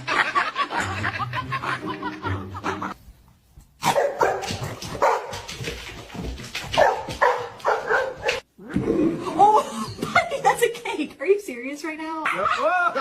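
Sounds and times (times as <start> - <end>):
dog barking and yipping: 3.8 - 5.6, 6.7 - 8.5.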